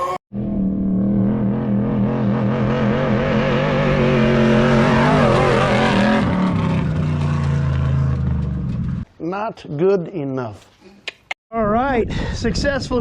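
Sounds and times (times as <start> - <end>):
truck engine running: 0.4 - 9.0.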